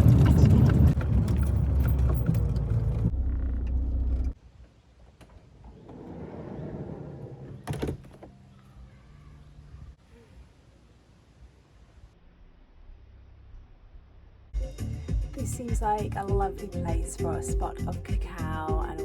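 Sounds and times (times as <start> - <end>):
van engine running: 0.0 - 4.4.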